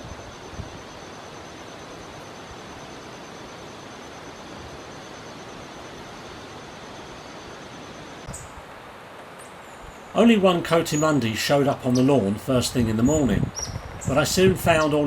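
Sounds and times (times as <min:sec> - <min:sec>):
faint high pulsing tone: 0:00.0 - 0:08.6
steady hiss: 0:00.0 - 0:15.0.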